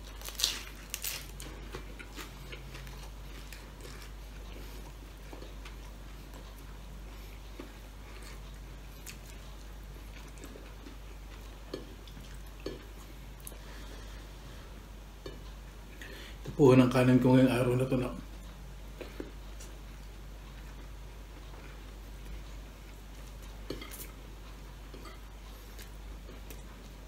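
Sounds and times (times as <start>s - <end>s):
crisp bites and chewing: 0.0s - 4.2s
steady low hum: 0.0s - 27.0s.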